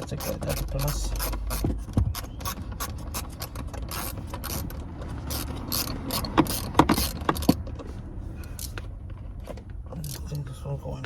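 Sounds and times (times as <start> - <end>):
ratchet wrench clicking: 0.0 - 7.6.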